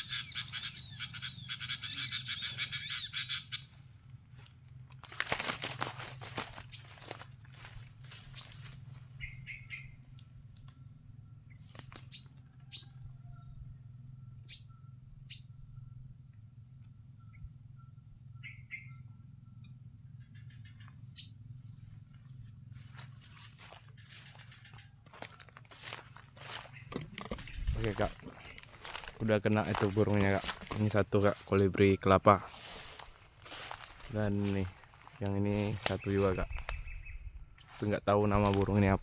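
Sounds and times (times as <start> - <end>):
bird trills: 0.0 - 3.8, 7.6 - 10.0, 11.5 - 13.5, 18.4 - 19.0, 22.3 - 31.9, 32.6 - 39.0
small birds chirping: 0.0 - 13.6, 14.2 - 16.0, 20.2 - 39.0
insects droning: 0.0 - 39.0.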